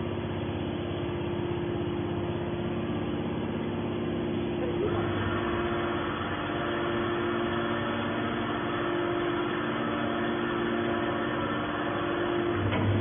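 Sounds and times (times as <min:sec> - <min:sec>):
hydraulic machine humming: 0:00.0 - 0:13.0.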